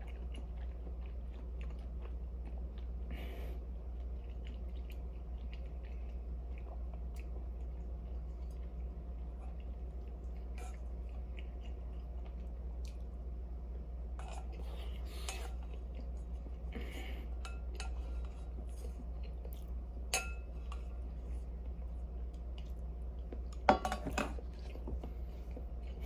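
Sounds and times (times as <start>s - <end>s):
steady low hum: 0.0s - 26.0s
tableware clinking against dishes: 23.7s - 24.4s.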